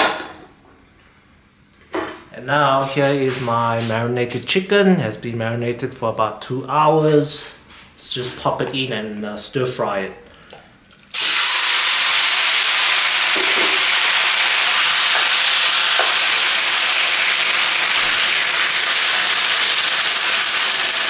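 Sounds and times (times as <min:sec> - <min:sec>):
chicken sizzling in oil: 0:11.1 - 0:21.0.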